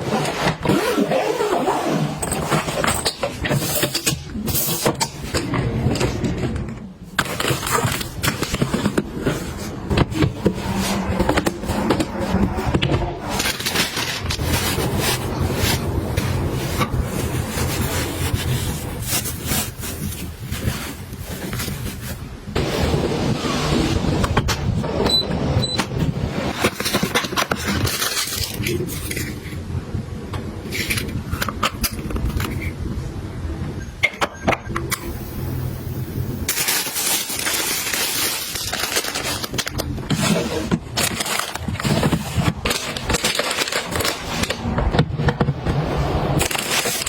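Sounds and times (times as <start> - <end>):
packaging clicks and knocks: 36.5 - 45.8.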